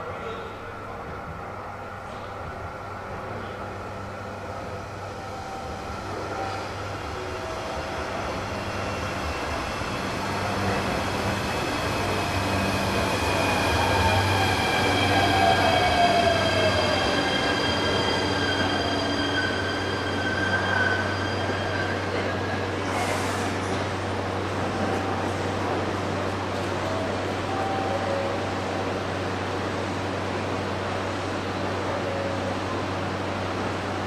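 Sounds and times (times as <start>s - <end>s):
train braking to a stop: 4.6s - 24.1s.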